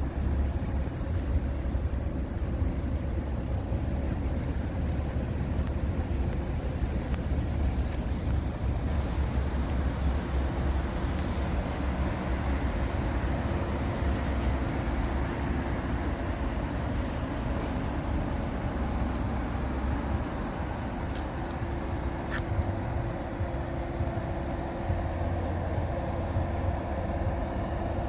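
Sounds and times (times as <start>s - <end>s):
car engine rumble: 0.0s - 28.0s
road noise: 0.0s - 28.0s.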